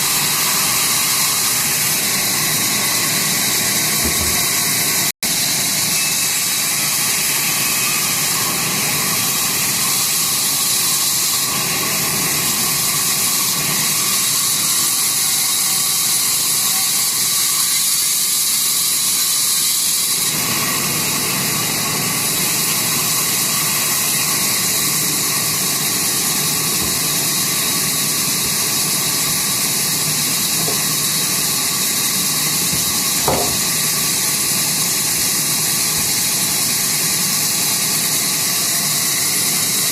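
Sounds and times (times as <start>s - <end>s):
sawmill saw whirring: 0.0s - 39.9s
faint knock: 4.0s - 4.4s.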